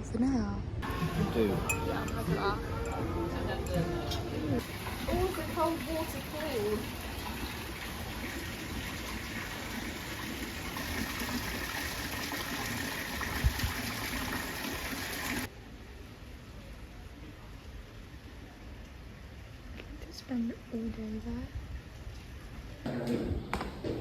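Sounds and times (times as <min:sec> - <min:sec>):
splashing water: 0:04.6 - 0:15.5.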